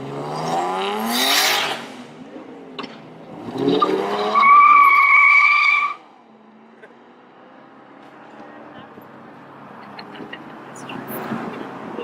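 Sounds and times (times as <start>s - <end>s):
car engine revving: 0.0s - 2.2s.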